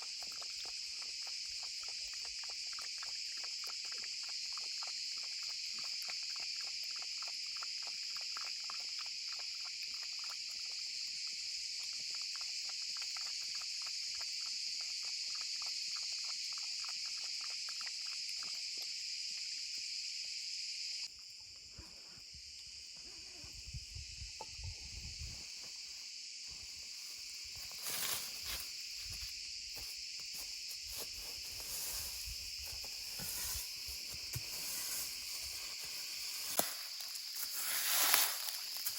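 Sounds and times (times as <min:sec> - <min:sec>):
forest insects chorus: 0:00.0 - 0:38.9.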